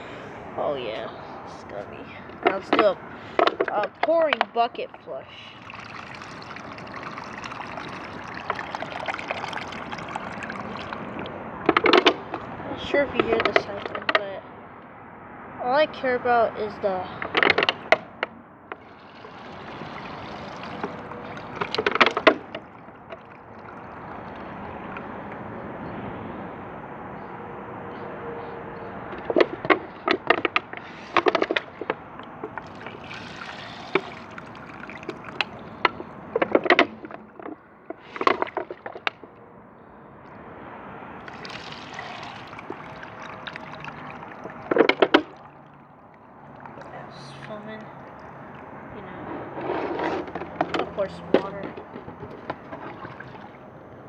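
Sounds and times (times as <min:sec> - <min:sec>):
water gurgling through toilet bowl: 0:00.8 - 0:14.0, 0:18.8 - 0:25.2, 0:29.4 - 0:39.3, 0:41.2 - 0:48.9, 0:49.6 - 0:53.7.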